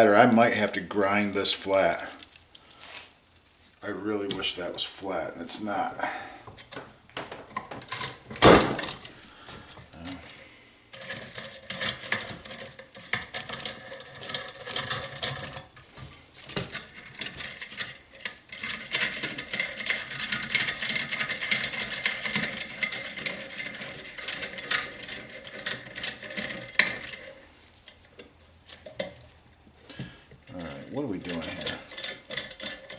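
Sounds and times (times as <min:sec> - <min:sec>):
metal tools clinking against engine: 0:06.6 - 0:10.0, 0:10.9 - 0:29.6, 0:30.2 - 0:32.9.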